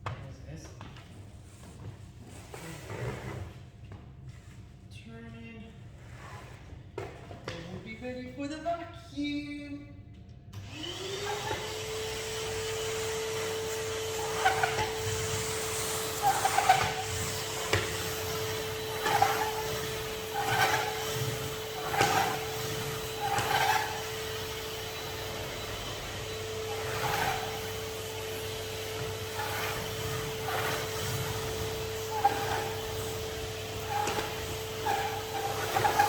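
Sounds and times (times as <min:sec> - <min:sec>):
vacuum cleaner motor whine: 0:10.5 - 0:36.0
vacuum nozzle rubbing a surface: 0:10.8 - 0:36.0.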